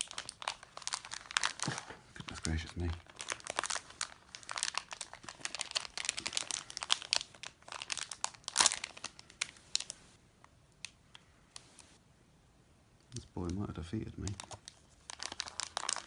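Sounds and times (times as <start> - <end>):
plastic packet crinkling: 0.0 - 10.0, 13.4 - 16.0.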